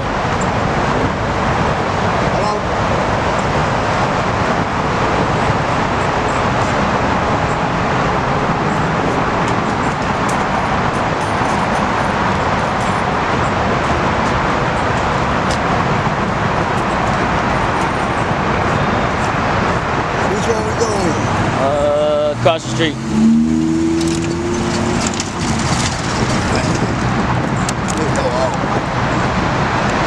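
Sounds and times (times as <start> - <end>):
road traffic noise: 0.0 - 30.0.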